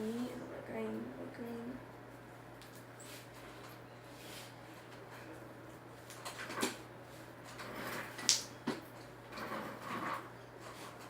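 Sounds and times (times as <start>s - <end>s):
faint low hum: 0.0s - 8.0s.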